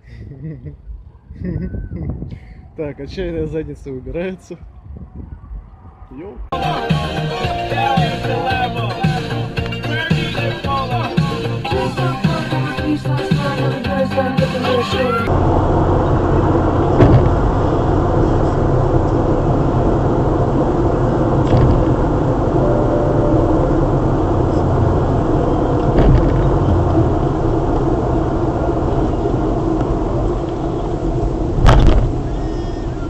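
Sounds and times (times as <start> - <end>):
vehicle engine and road noise: 15.1 - 33.0.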